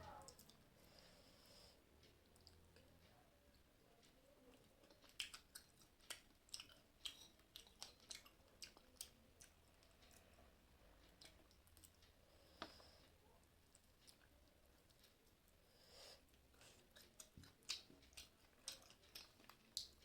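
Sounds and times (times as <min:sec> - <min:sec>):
person chewing food crunchily: 0:04.5 - 0:10.4, 0:16.2 - 0:20.0.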